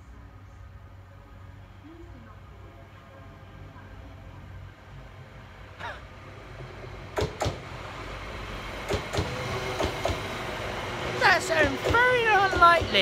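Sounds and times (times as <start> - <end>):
train running noise: 0.0 - 13.0
sharp clacks: 8.9 - 10.3.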